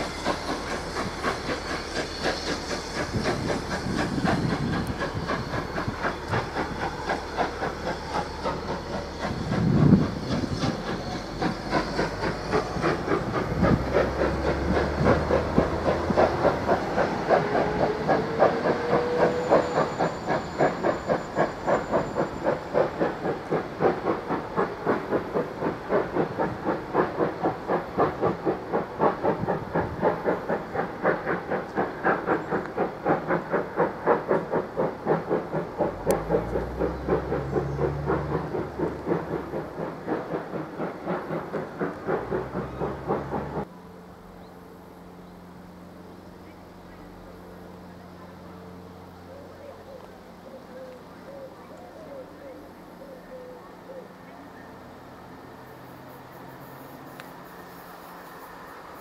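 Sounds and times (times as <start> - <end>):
train running past rhythmically: 0.0 - 59.0.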